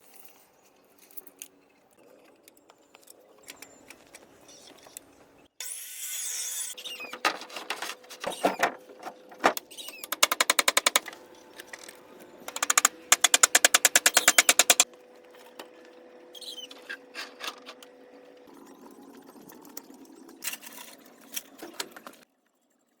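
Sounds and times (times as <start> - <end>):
power tool hammering: 10.0 - 11.2, 12.5 - 14.9.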